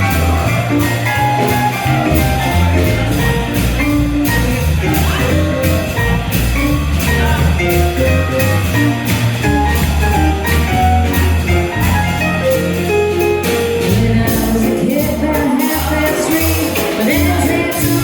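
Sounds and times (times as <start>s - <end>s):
swing jazz band playing: 0.0s - 18.0s.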